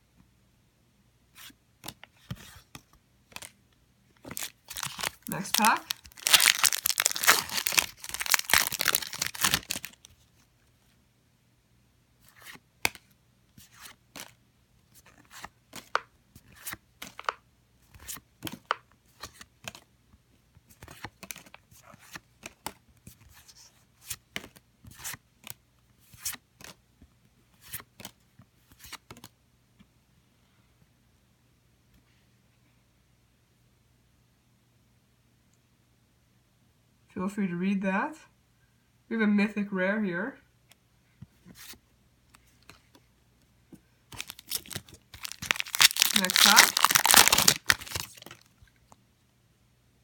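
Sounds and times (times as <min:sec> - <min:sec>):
foil wrapper crinkling and tearing: 0:04.2 - 0:10.1, 0:44.1 - 0:48.5
cards flicking and snapping: 0:04.3 - 0:09.9, 0:44.2 - 0:48.4.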